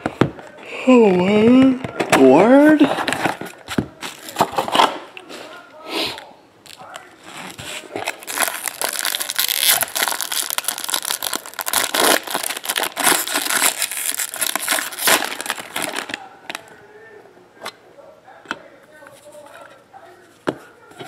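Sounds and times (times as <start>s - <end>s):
plastic wrapping crinkling: 6.6s - 16.7s.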